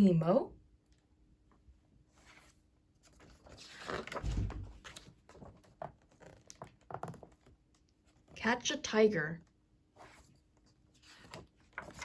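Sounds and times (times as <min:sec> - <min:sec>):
paper rustling: 0:02.1 - 0:08.3, 0:10.0 - 0:12.0.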